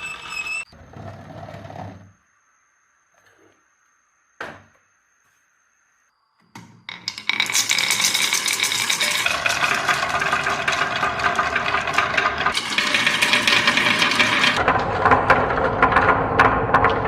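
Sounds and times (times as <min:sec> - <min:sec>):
marbles rattling down a marble run: 0:06.9 - 0:17.0.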